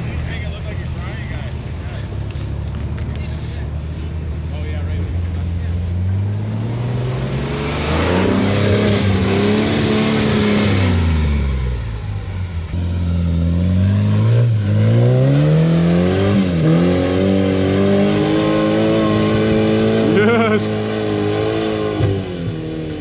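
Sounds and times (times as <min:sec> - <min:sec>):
engine revving under throttle: 0:05.9 - 0:23.0.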